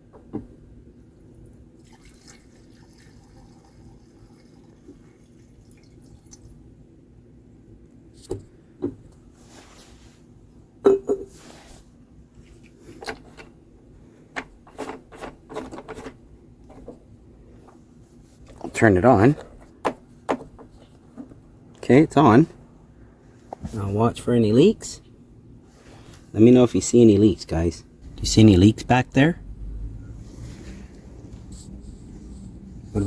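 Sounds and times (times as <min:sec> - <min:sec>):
fuel trickling into tank: 0:01.8 - 0:06.6.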